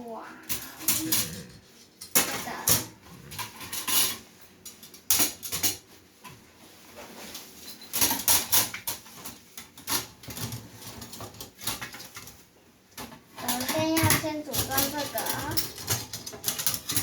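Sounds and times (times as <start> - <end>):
metal grill parts clinking: 0.5 - 5.8, 13.4 - 17.0.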